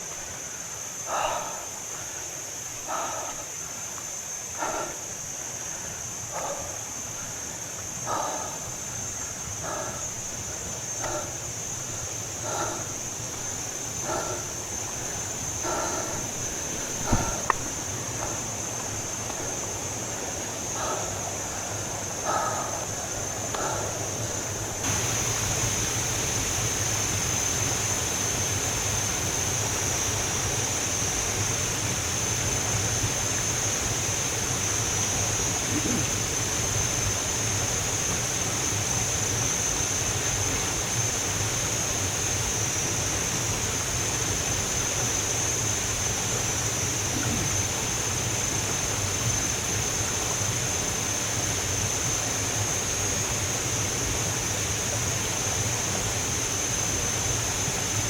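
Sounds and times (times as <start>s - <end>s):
water rushing over rocks: 12.5s - 19.6s.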